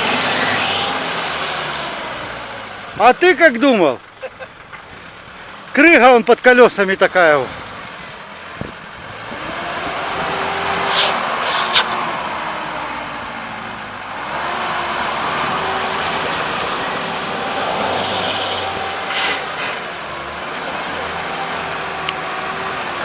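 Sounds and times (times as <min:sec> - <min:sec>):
off-road vehicle engine under load: 0:00.0 - 0:23.0
short hissing noises: 0:10.8 - 0:12.0, 0:19.0 - 0:19.9.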